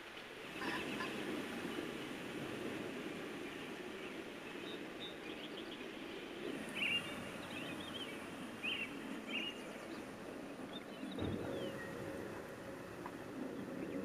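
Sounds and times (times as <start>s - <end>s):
low outdoor background noise: 0.0s - 14.0s
birds chirping: 0.4s - 14.0s.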